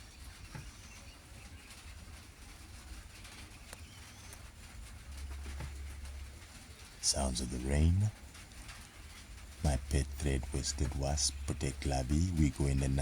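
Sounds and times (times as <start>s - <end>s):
birds chirping: 0.0s - 13.0s
steady low rumble: 4.8s - 13.0s.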